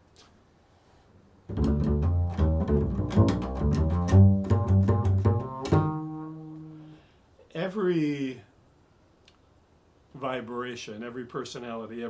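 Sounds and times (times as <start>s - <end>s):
plucked double bass: 1.5s - 7.0s.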